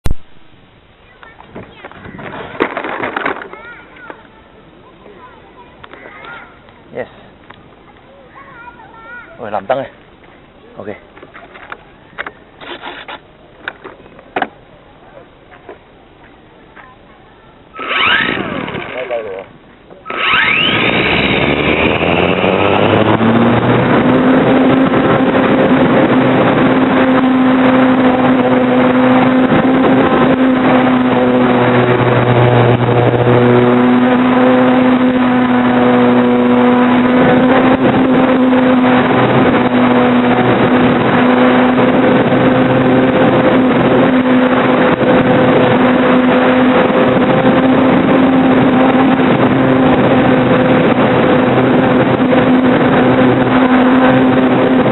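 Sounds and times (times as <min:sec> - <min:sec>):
model plane motor and propeller: 0:17.8 - 0:54.9
rushing wind noise: 0:17.8 - 0:54.9.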